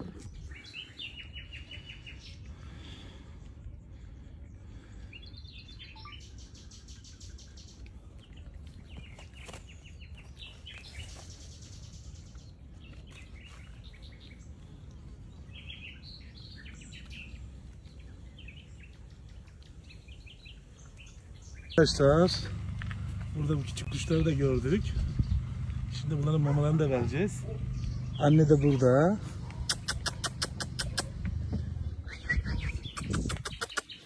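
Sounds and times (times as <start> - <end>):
birds chirping: 0.0 - 34.0
steady low rumble: 7.2 - 33.4.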